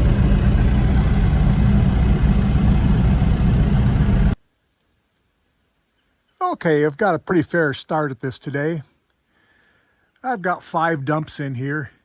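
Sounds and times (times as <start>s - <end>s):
combine harvester engine running: 0.0s - 4.4s.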